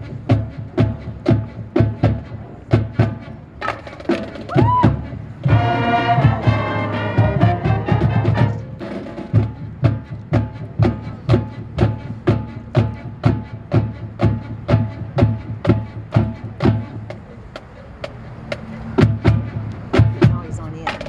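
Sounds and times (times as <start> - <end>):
drumline playing a cadence: 0.0 - 21.0
brass band chord: 5.4 - 9.4.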